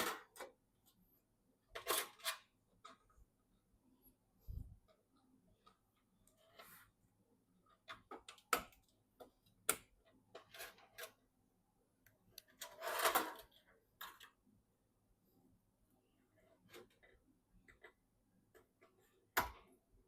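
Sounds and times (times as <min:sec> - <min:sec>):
rustling scrape: 0:06.3 - 0:07.0.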